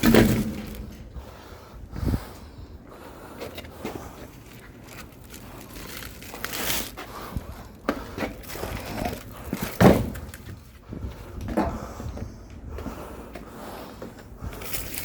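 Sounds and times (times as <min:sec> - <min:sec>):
firewood knocks and scrapes: 0:00.0 - 0:01.1, 0:07.9 - 0:10.6
heavy wood thump: 0:09.8 - 0:10.3.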